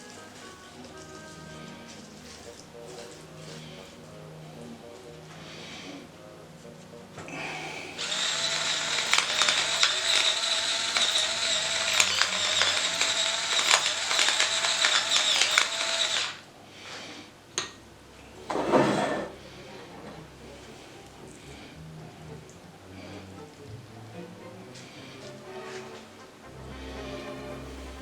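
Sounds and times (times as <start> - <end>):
kitchen appliance motor whining: 7.3 - 16.4
rattling clicks: 8.0 - 16.4.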